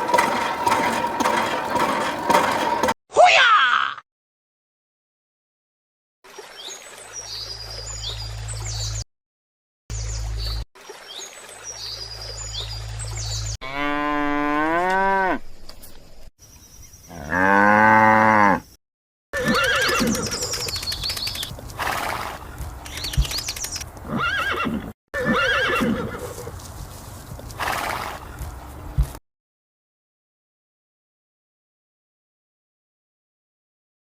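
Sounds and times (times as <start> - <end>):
cow mooing: 13.6 - 15.4, 17.2 - 18.7
bird and animal calls: 19.6 - 21.5.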